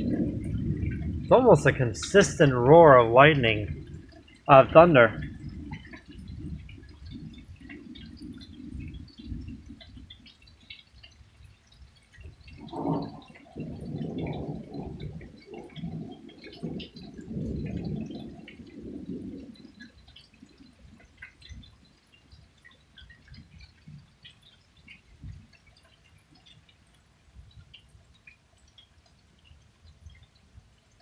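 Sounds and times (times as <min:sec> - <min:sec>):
low thunder rumbling: 0:00.0 - 0:10.3, 0:12.3 - 0:21.7
faint ticks: 0:03.7 - 0:31.0.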